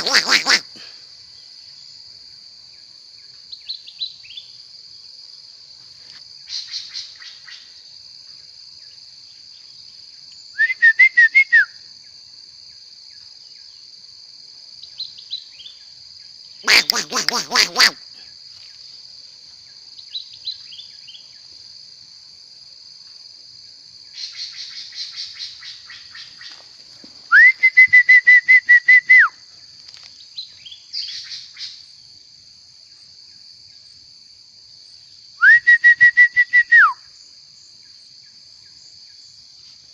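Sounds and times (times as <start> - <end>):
songbird singing: 2.7 - 4.7, 6.0 - 7.8, 14.8 - 21.6, 24.1 - 32.2.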